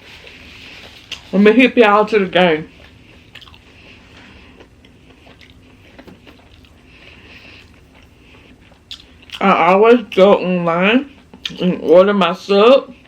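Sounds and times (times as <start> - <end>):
chewing sandwich: 0.1 - 1.3, 2.7 - 10.3.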